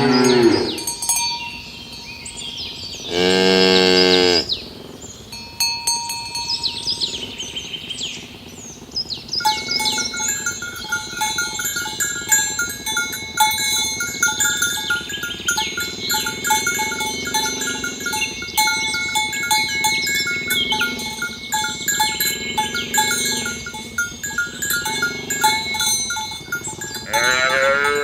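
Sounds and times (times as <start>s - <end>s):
cow mooing: 0.0s - 0.9s, 3.1s - 4.5s, 27.0s - 28.0s
repeated bell-like tones: 0.0s - 2.6s, 5.3s - 7.3s, 9.4s - 28.0s
small birds chirping: 0.0s - 28.0s.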